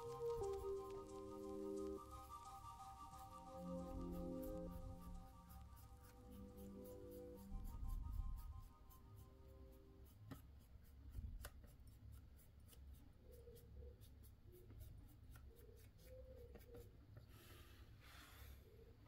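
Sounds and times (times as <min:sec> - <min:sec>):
faint small clicks and taps: 0:10.0 - 0:17.3.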